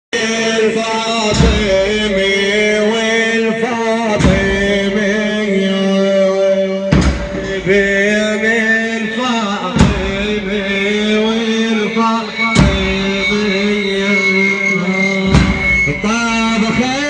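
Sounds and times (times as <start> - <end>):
deep drum hit: 1.2 - 2.7, 4.1 - 5.4, 6.9 - 8.7, 9.6 - 11.2, 12.2 - 14.0, 15.2 - 17.0
wavering voices: 7.0 - 17.0
chanted vocal drone: 7.4 - 17.0.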